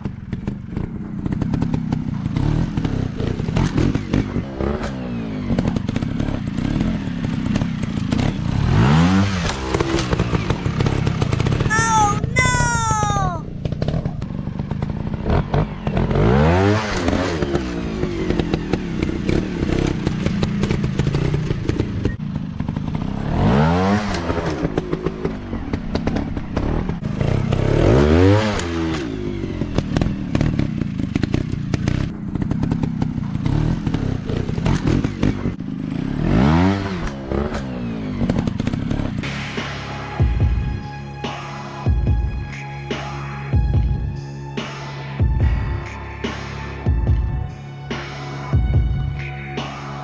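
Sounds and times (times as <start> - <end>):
motorcycle engines revving: 13.7 - 39.2.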